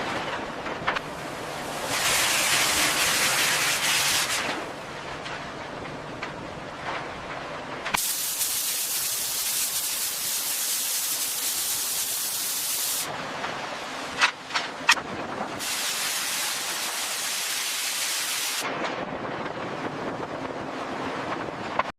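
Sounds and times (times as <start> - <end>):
pressure washer jet spraying: 1.9 - 4.4, 8.0 - 13.1, 15.6 - 18.6.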